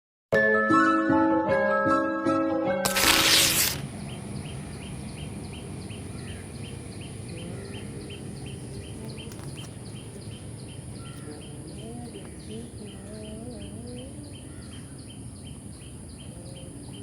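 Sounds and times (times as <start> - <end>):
bird chirping: 2.9 - 17.0
steady high hiss: 2.9 - 17.0
low background rumble: 3.8 - 17.0.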